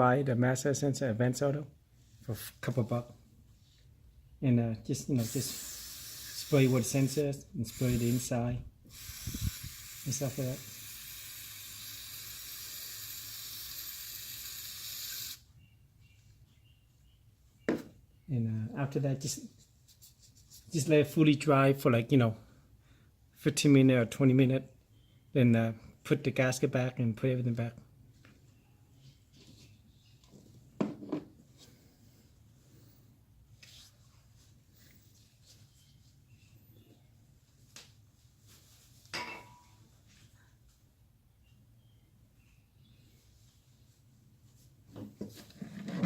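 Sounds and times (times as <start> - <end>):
aerosol can spraying: 5.2 - 15.4
hand rubbing and handling parts: 19.5 - 20.8.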